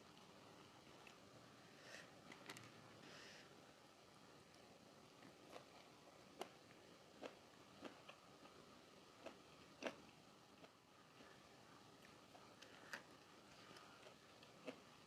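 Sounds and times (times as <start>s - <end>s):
chewing crunchy food: 5.2s - 15.0s.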